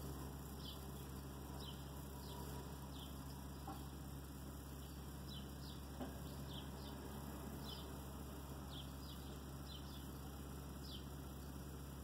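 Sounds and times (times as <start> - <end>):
faint bird chirping: 0.0 - 12.0
low steady hum: 0.0 - 12.0.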